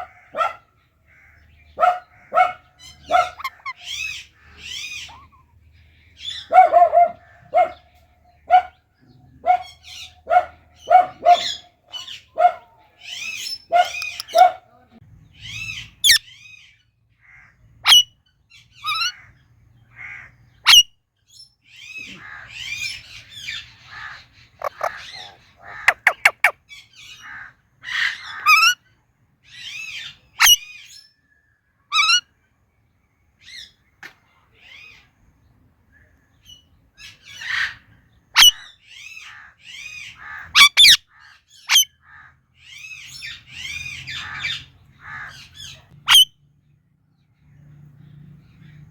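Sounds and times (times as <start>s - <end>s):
parakeet chirping and squawking: 1.4s - 5.4s, 13.1s - 14.5s, 17.8s - 18.0s, 18.8s - 19.2s, 22.6s - 27.3s, 27.9s - 28.8s, 29.8s - 30.7s, 31.9s - 32.2s, 38.4s - 38.6s, 39.7s - 41.0s, 41.6s - 41.9s, 42.7s - 46.3s
parakeet shrieks: 2.3s - 5.4s, 23.9s - 26.5s, 27.2s - 28.8s, 30.4s - 30.6s, 31.9s - 32.2s, 38.4s - 38.6s, 40.2s - 41.0s, 41.7s - 41.9s, 46.1s - 46.3s.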